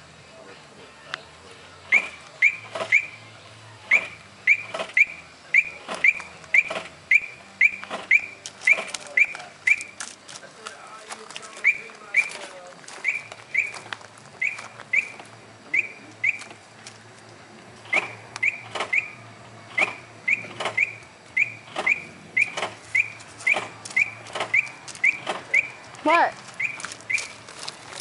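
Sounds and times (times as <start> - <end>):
bird chirping: 3.9 - 10.0, 11.6 - 12.4, 13.0 - 16.6, 17.8 - 25.8, 26.6 - 27.4
sharp clicks: 17.8 - 25.8.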